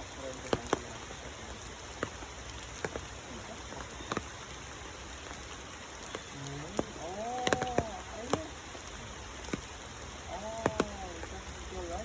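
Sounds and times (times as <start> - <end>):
sharp drips: 0.0 - 12.0
steady rain falling: 0.0 - 12.0
person's voice: 6.3 - 8.6, 10.2 - 12.0.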